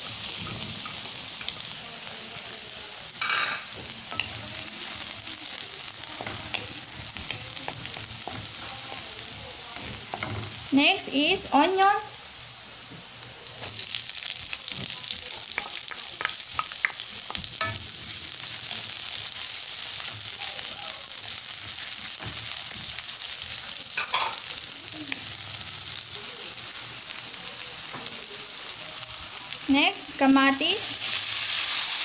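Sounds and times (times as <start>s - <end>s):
onion and garlic sizzling in oil: 0.0s - 32.0s.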